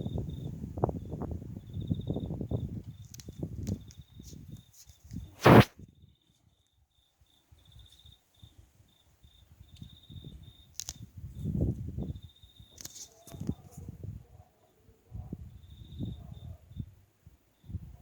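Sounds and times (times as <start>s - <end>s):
insect chirping trills: 0.0s - 5.4s, 6.0s - 13.6s, 15.5s - 16.9s, 17.5s - 17.8s
sharp knock: 5.4s - 5.7s.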